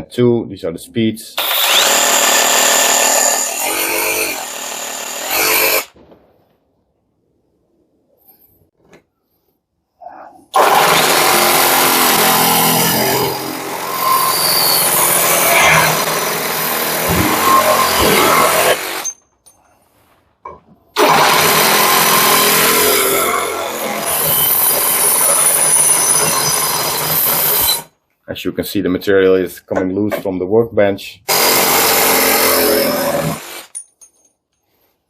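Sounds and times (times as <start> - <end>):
reciprocating saw cutting sheet metal: 10.6 - 19.2.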